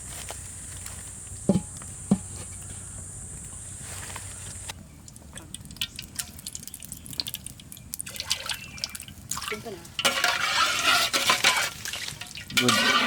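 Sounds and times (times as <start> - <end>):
oil crackles and pops: 4.5 - 12.8
frying in hot oil sizzle: 5.0 - 13.0.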